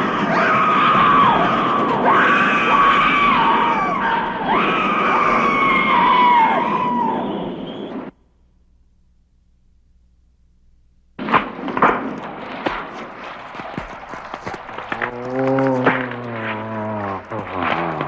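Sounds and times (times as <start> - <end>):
high-pitched screaming: 0.0 - 8.1.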